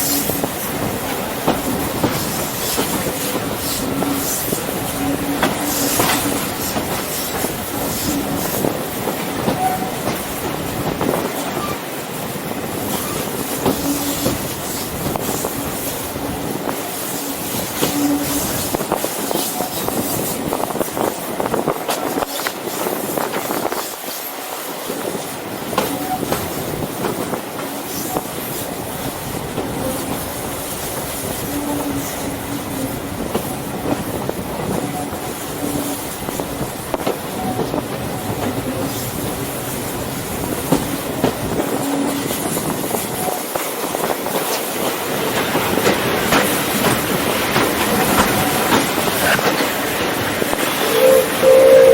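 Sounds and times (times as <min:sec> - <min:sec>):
wheels clicking over rail joints: 0:00.0 - 0:11.8, 0:25.0 - 0:51.2
train running on track: 0:00.0 - 0:51.9.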